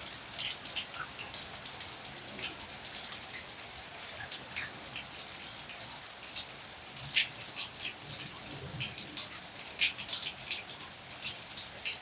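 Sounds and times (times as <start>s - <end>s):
rain falling: 0.0s - 12.0s
raindrops ticking on surface: 0.0s - 12.0s.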